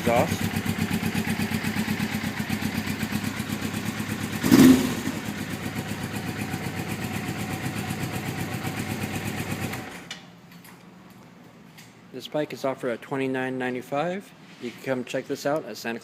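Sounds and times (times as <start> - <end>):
motorcycle engine idling: 0.0 - 9.8.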